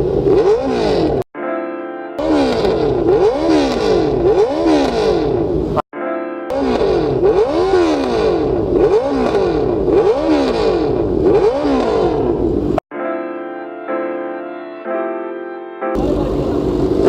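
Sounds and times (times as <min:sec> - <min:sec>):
motorcycle engine revving: 0:00.0 - 0:01.3, 0:02.2 - 0:05.8, 0:06.5 - 0:12.8, 0:16.0 - 0:17.0
music: 0:01.4 - 0:02.2, 0:06.0 - 0:06.5, 0:12.9 - 0:16.6.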